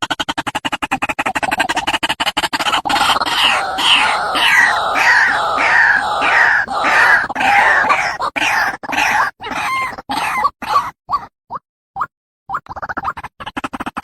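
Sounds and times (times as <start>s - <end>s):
waterhen calling: 3.3s - 9.3s.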